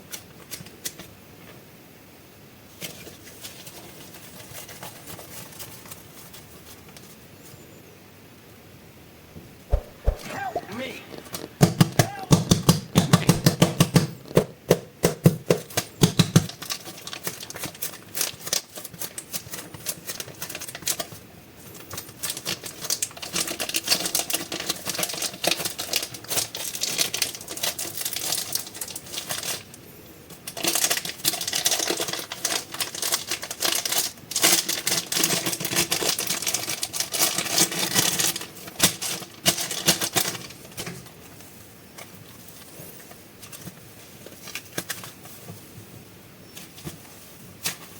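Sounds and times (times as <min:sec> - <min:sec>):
soft thumps: 0:09.7 - 0:10.4
plastic packaging crinkling: 0:16.4 - 0:21.2, 0:30.5 - 0:40.5.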